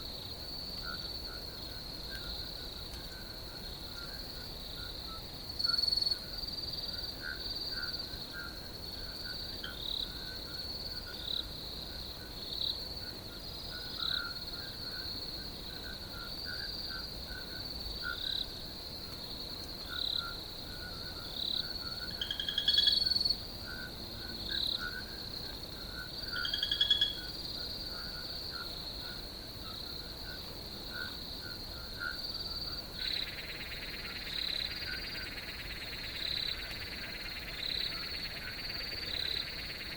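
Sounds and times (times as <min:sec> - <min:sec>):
crickets trilling: 0:00.0 - 0:39.9
hissing insect chorus: 0:19.8 - 0:39.9
lower insect chirps: 0:21.6 - 0:23.4.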